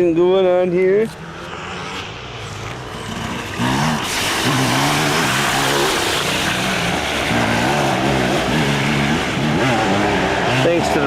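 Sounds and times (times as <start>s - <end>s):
dirt bike engine revving: 1.2s - 11.0s
rushing water: 2.4s - 10.4s.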